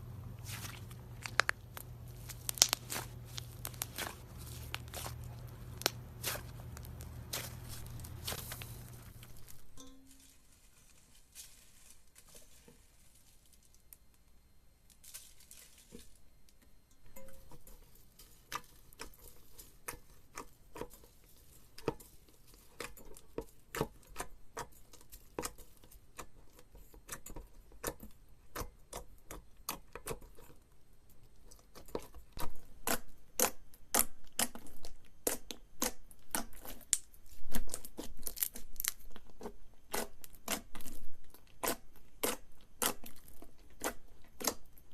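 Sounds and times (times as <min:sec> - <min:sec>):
slime clicking and popping: 0:00.8 - 0:09.6.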